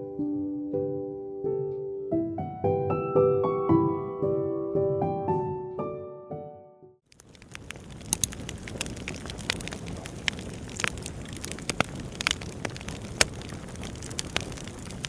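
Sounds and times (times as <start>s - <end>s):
burning logs hissing: 7.1s - 15.0s
fire pops and snaps: 7.1s - 15.0s.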